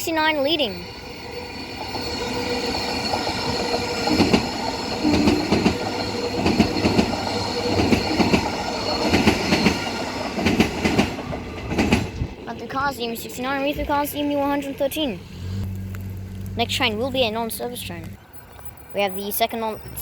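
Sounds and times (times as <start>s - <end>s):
electric train passing whine: 0.1s - 19.0s
train wheels clattering: 1.7s - 12.8s.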